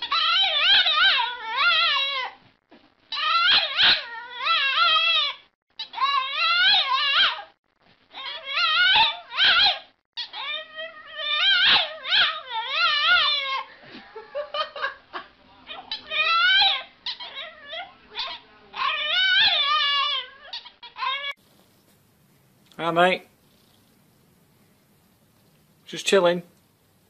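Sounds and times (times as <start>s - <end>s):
puppy howl-whining: 0.0s - 2.4s, 3.1s - 13.7s, 15.7s - 21.4s.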